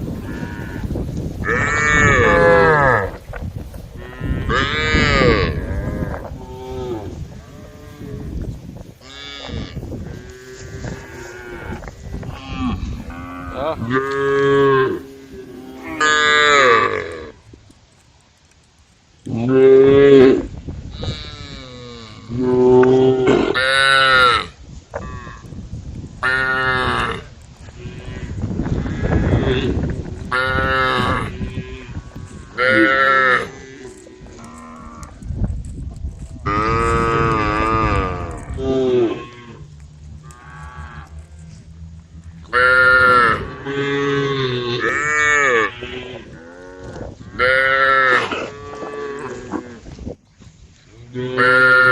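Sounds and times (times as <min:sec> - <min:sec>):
cows mooing: 0:00.1 - 0:03.2, 0:04.0 - 0:17.4, 0:26.2 - 0:35.3, 0:36.4 - 0:50.0, 0:51.0 - 0:51.9.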